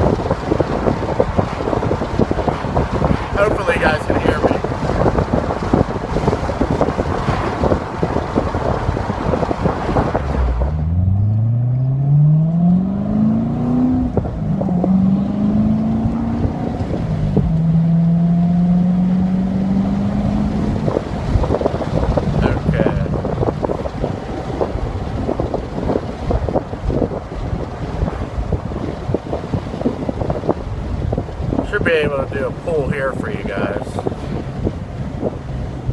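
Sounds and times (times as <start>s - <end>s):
sports car exhaust accelerating: 0.0s - 35.9s
wind noise on microphone: 0.0s - 35.9s.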